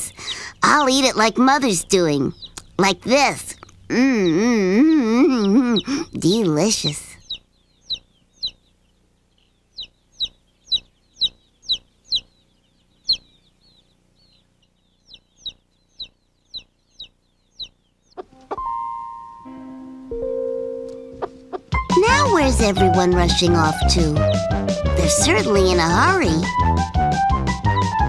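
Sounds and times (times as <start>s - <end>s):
baby chicks peeping: 0.0s - 19.4s, 20.8s - 28.0s
children's music with held tones: 18.2s - 28.0s.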